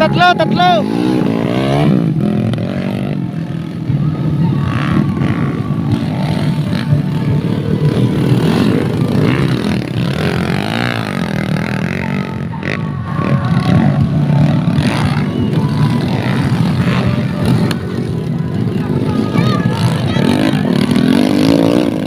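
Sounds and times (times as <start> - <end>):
dirt bike engines revving: 0.0 - 22.0.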